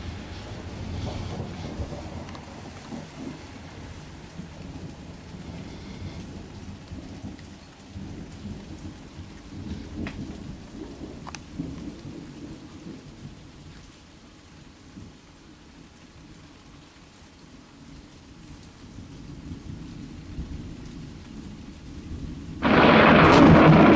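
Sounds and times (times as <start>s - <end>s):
thunder rumbling: 0.0s - 13.6s, 22.1s - 23.9s
rain falling: 0.0s - 23.9s
sharp drip ticks: 11.2s - 12.0s.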